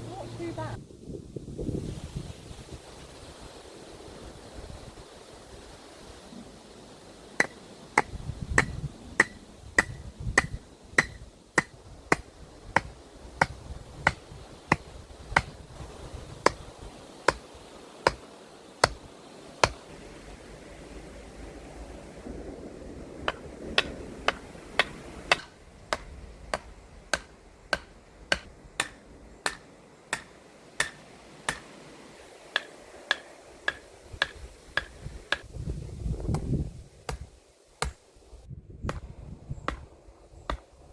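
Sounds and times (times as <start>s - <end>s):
hammer striking wooden post: 7.4s - 15.6s, 17.3s - 19.0s, 19.6s - 19.8s, 23.3s - 31.8s, 32.5s - 35.5s, 37.1s - 38.0s.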